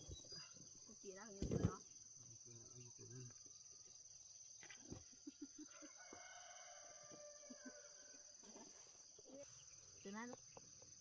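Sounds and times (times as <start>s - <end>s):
rooster crowing: 5.6s - 8.3s.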